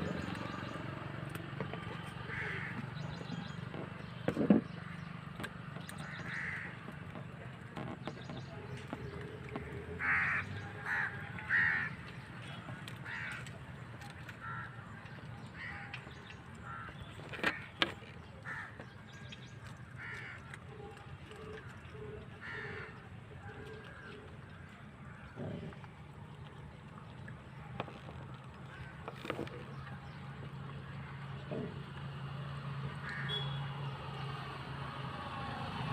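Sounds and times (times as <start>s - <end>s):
crows cawing: 2.2s - 2.8s, 6.0s - 6.8s, 10.0s - 12.0s, 13.0s - 13.5s, 14.4s - 14.8s, 15.6s - 16.0s, 16.6s - 17.6s, 18.4s - 18.8s, 20.0s - 20.5s, 22.4s - 23.0s, 33.0s - 33.4s.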